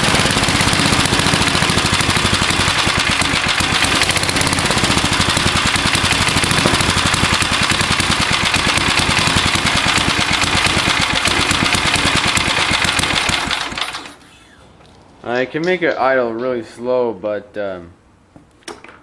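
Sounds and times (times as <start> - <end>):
lawnmower engine running: 0.0 - 14.3.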